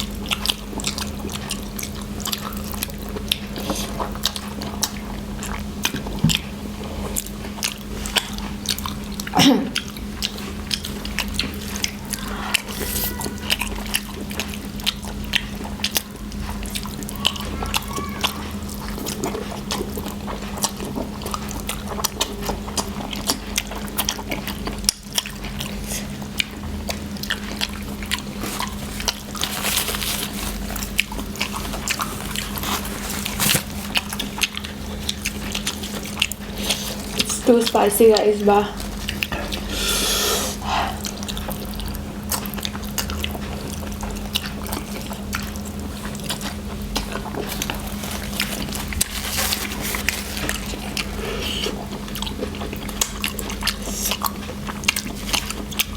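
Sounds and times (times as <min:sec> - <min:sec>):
chewing noodles: 0:00.0 - 0:55.9
steady low hum: 0:18.5 - 0:55.9.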